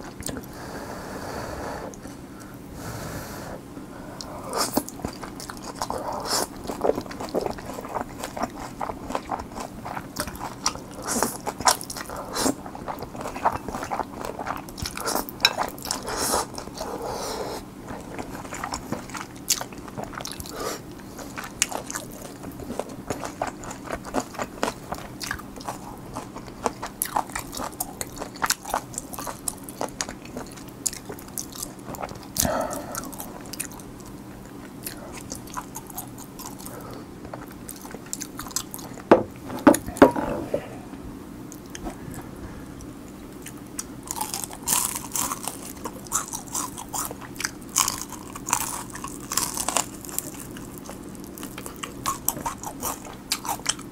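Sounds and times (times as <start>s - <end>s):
crisp crunching of fried chicken: 43.8s - 53.9s.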